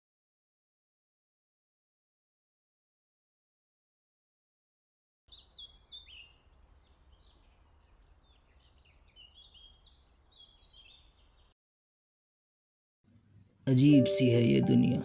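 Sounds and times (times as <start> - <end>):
birds chirping: 5.3 - 11.5.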